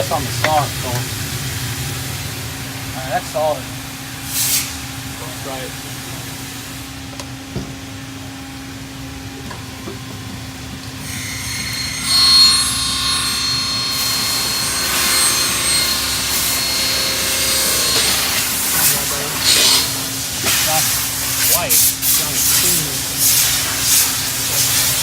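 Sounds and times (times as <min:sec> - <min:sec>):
miter saw cutting aluminum: 0:09.4 - 0:25.0.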